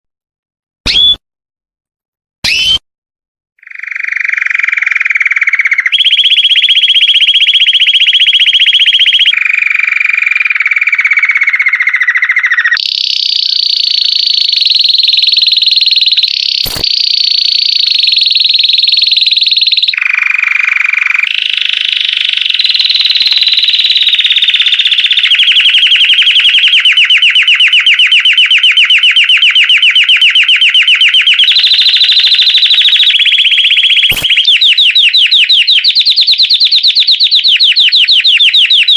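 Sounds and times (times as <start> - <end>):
canary singing trills: 3.6 - 38.9.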